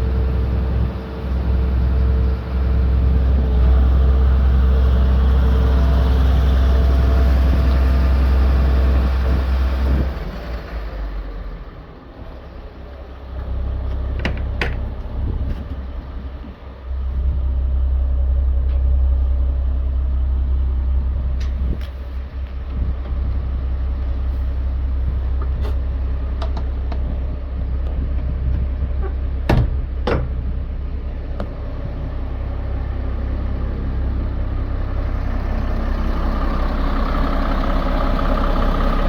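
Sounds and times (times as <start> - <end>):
diesel truck engine humming: 0.0 - 39.0.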